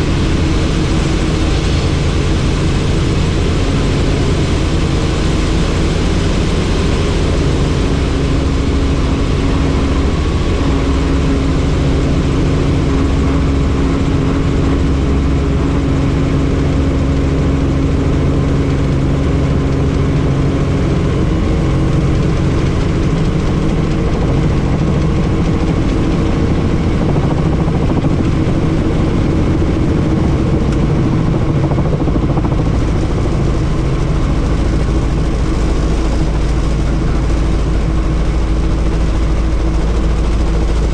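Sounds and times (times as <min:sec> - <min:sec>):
helicopter rotor and engine: 0:00.0 - 0:40.9
wind rush: 0:19.3 - 0:38.6.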